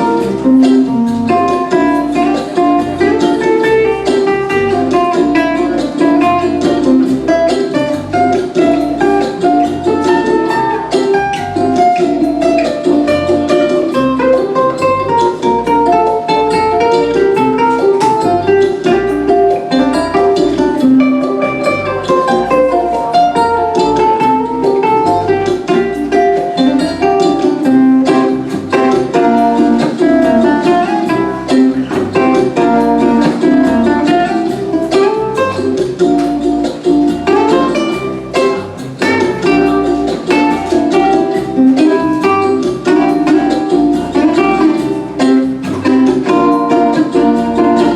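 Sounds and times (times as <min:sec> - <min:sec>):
backing track bass line: 0:00.0 - 0:47.9
plucked ukulele melody: 0:00.0 - 0:47.9.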